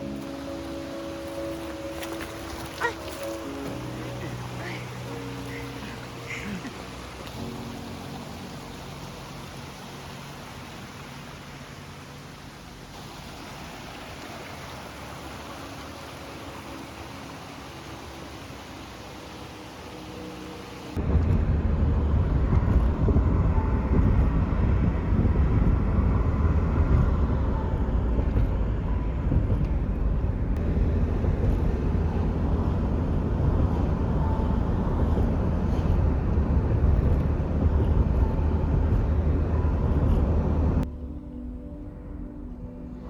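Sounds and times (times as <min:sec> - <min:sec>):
loud low rumble: 0:21.0 - 0:43.0.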